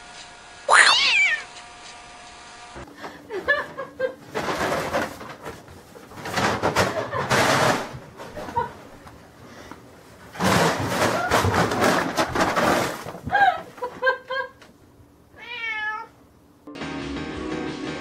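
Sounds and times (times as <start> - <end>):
cat meowing: 0.7 - 1.5, 15.4 - 16.2.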